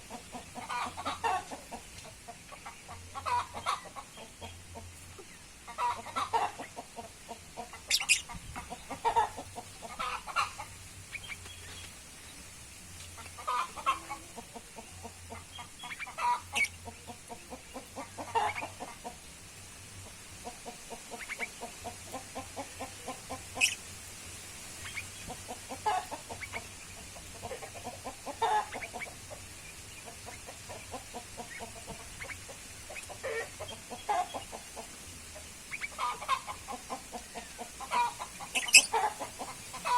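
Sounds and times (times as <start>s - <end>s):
birds calling low: 0.0s - 12.4s, 20.4s - 39.9s
high-pitched bird calls: 7.9s - 8.4s, 23.6s - 23.8s, 38.0s - 39.2s.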